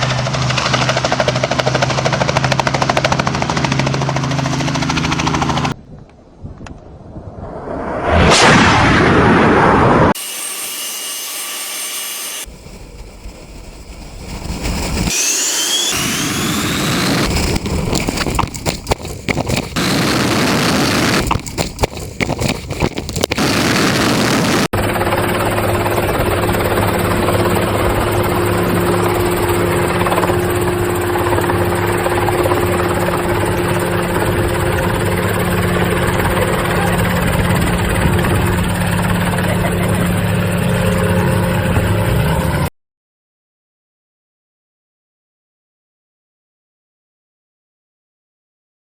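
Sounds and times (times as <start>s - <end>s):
aircraft engine noise: 0.0s - 42.7s
rising whines: 6.8s - 18.5s, 19.8s - 21.3s, 23.2s - 24.7s
engine drone with hum: 8.3s - 42.7s.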